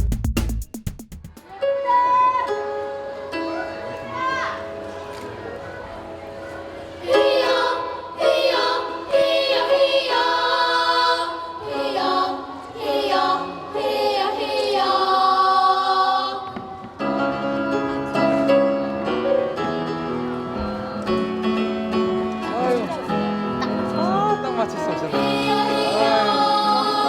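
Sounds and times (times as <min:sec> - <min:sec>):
vocal ensemble singing in harmony: 0:06.7 - 0:19.6, 0:24.1 - 0:27.0.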